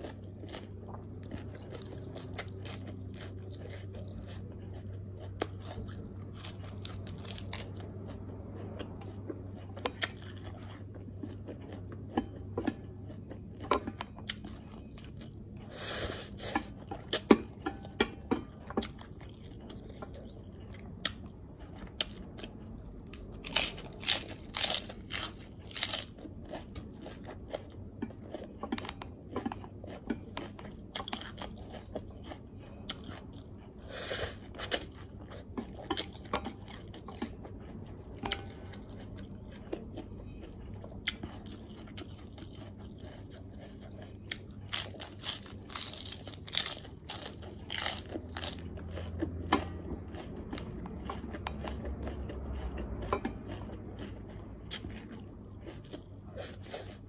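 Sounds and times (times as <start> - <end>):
crunching lettuce: 0.0 - 8.3, 23.0 - 27.7, 38.6 - 57.0.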